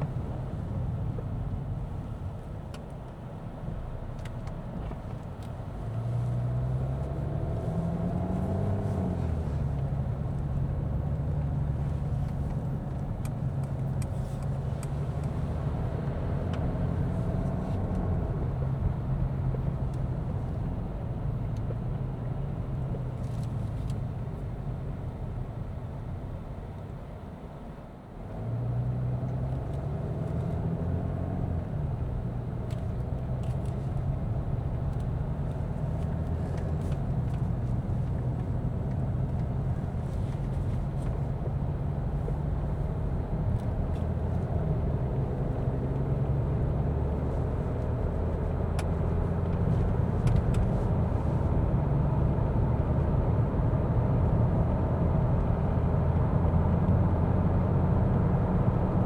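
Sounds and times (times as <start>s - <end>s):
tyre and road noise: 0.0s - 26.4s, 29.3s - 59.0s
diesel car engine running: 0.0s - 27.7s, 28.4s - 59.0s.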